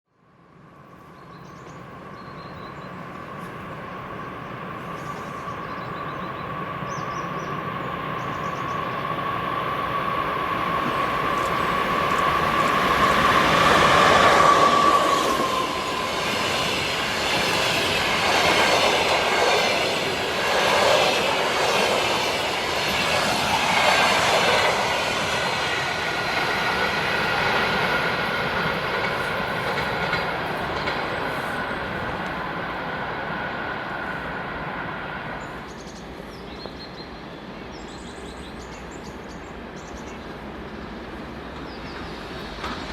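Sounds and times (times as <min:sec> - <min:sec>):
electric locomotive whine: 0:00.6 - 0:42.9
train wheels clattering over rail joints: 0:26.3 - 0:32.3.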